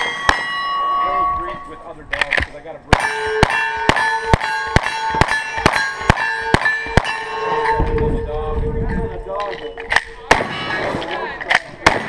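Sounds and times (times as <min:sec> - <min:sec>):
steel target ringing: 0:00.0 - 0:01.9, 0:02.9 - 0:08.3
gunshots: 0:02.9 - 0:07.6, 0:09.9 - 0:12.0.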